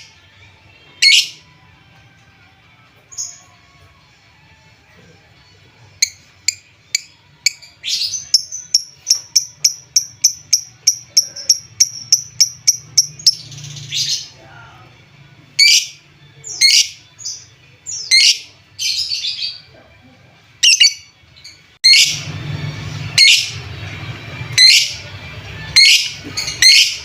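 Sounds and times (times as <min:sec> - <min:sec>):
lovebird chirping: 0:06.0 - 0:14.2, 0:20.6 - 0:21.1, 0:24.6 - 0:25.0, 0:25.8 - 0:27.0.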